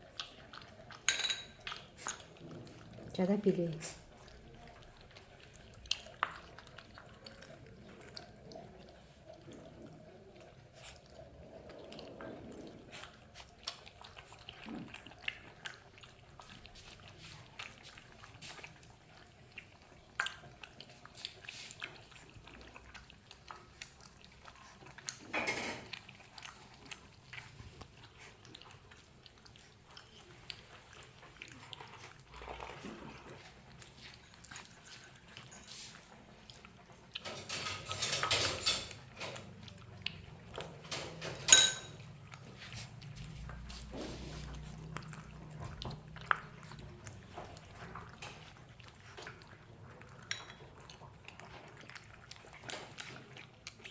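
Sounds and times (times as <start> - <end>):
puppies lapping milk: 0.0 - 53.9
puppy scuffle: 42.4 - 44.8.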